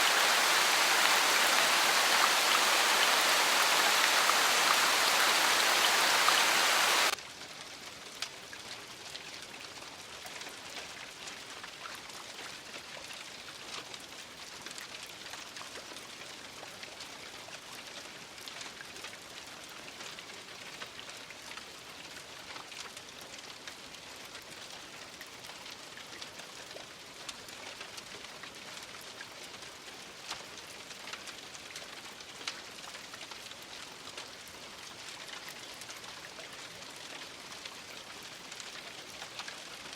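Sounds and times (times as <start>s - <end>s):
heavy rain rushing: 0.0s - 7.2s
raindrops pattering: 0.0s - 7.2s, 17.6s - 39.9s.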